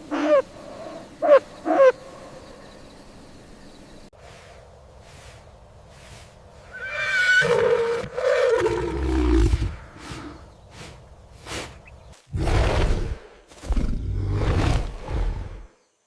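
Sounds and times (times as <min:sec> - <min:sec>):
horse whinnying: 0:06.7 - 0:09.0.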